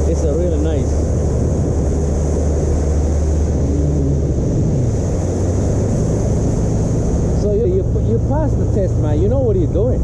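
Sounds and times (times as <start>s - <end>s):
motorboat engine droning: 0.0s - 10.0s
wind and water rushing: 0.0s - 10.0s.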